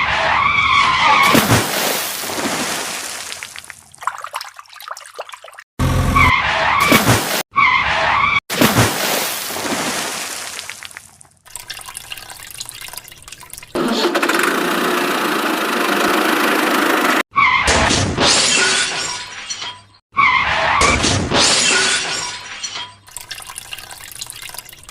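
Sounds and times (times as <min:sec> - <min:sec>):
water splashing: 0:01.2 - 0:05.7, 0:08.5 - 0:13.8, 0:23.1 - 0:24.9.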